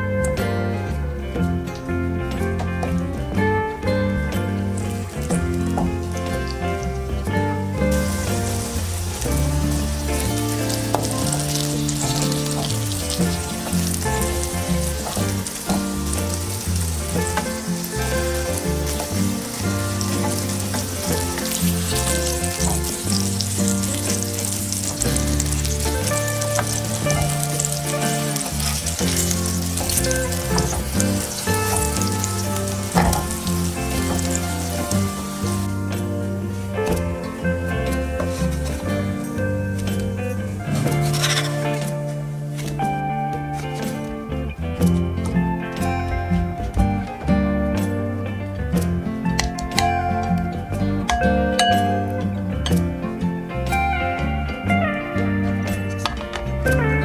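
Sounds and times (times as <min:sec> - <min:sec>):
background music with bass: 0:00.0 - 0:57.0
slices sizzling in frying oil: 0:04.4 - 0:42.8
wooden spatula scraping: 0:07.8 - 0:35.8, 0:37.7 - 0:42.8.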